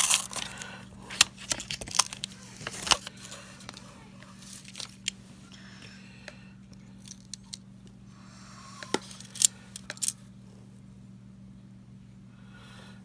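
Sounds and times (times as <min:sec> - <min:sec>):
coins clinking: 0:00.0 - 0:00.6, 0:09.0 - 0:10.2.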